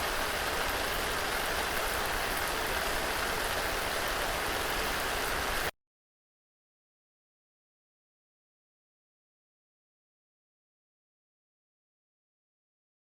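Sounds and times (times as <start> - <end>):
steady rain falling: 0.0 - 5.7.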